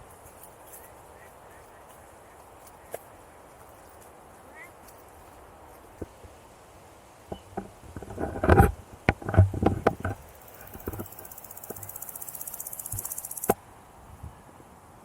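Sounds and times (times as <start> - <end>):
sharp knocks and clicks: 7.3 - 12.0
grasshopper stridulating buzz: 7.3 - 13.6.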